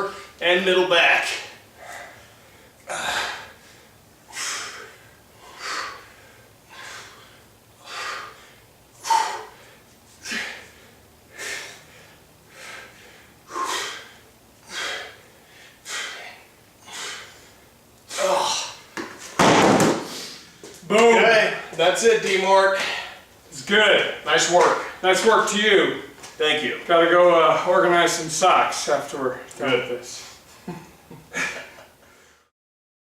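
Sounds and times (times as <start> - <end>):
man exhaling forcefully: 4.3 - 15.2.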